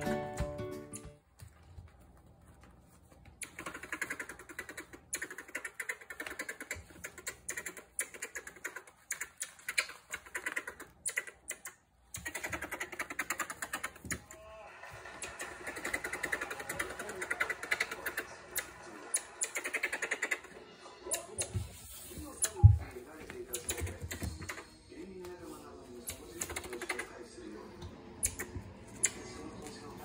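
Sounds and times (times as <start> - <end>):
marmoset scratching at slipper: 1.6 - 14.2.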